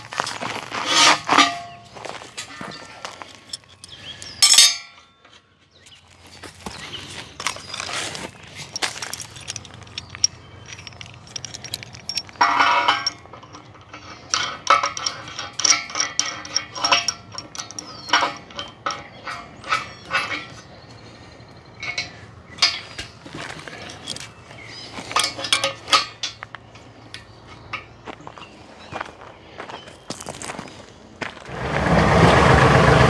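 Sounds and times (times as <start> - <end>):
steel parts clinking and clanging: 0.0 - 5.4, 7.3 - 28.1.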